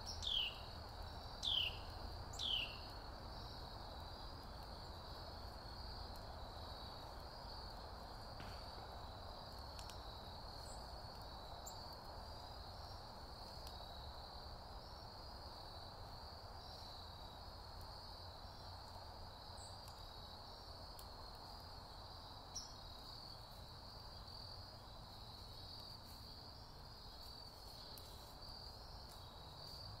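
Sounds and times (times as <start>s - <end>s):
wood fire crackling and popping: 0.0s - 13.8s, 25.1s - 30.0s
crickets trilling: 0.0s - 30.0s.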